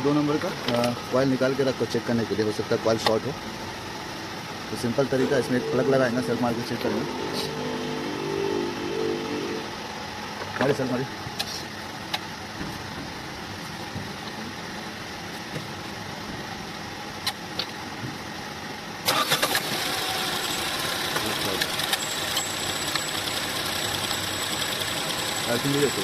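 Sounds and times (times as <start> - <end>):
steady background hum: 0.0 - 19.1
car engine running: 0.5 - 17.1, 19.7 - 26.0
car engine cranking on starter: 19.0 - 26.0.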